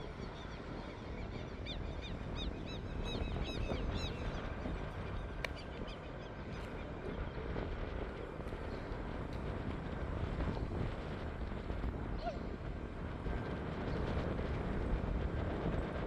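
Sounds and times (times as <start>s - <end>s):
distant light aircraft rumble: 0.0s - 16.0s
wind: 0.0s - 16.0s.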